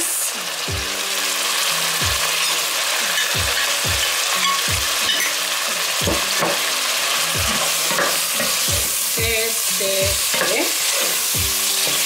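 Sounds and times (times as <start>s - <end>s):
food sizzling in a pot: 0.0s - 12.0s
background music with bass: 0.7s - 2.5s, 3.3s - 5.2s, 5.8s - 10.3s, 11.3s - 12.0s.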